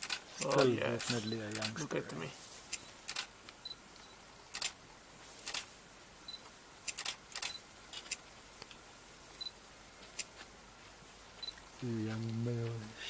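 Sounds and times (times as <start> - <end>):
camera shutter clicking: 4.5 - 4.8, 5.4 - 5.7, 6.9 - 8.2.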